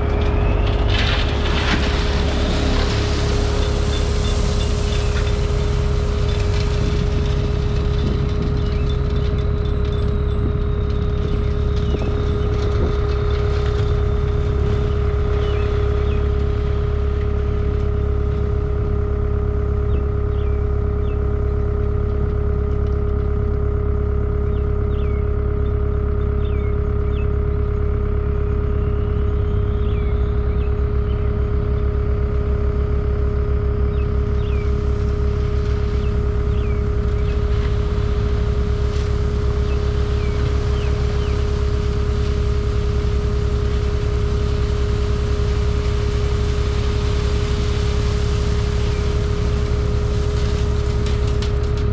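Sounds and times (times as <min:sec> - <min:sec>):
diesel engine running: 0:00.0 - 0:51.9
high whine: 0:00.0 - 0:51.9.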